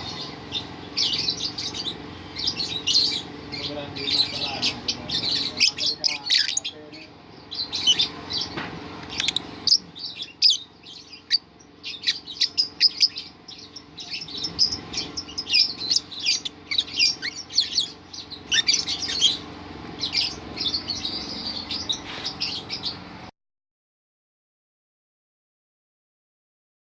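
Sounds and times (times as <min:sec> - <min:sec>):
lovebird chirping: 0:00.0 - 0:23.3.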